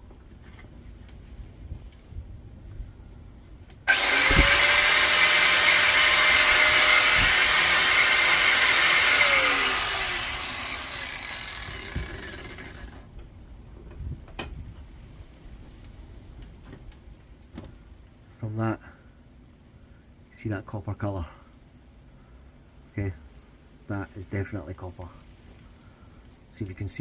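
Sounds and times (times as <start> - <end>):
angle grinder grinding metal: 3.9 - 13.0.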